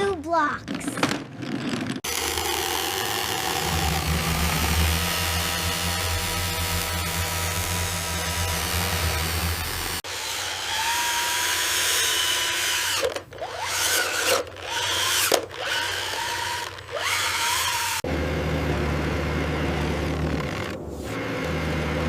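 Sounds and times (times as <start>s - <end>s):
whining power tool motor: 2.0s - 22.0s
steady low hum: 2.4s - 10.0s.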